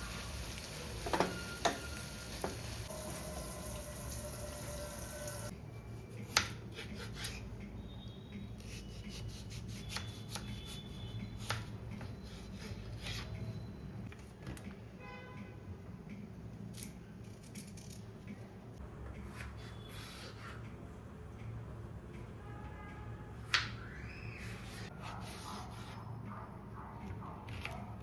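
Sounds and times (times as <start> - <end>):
food sizzling in a pan: 0.0 - 5.5.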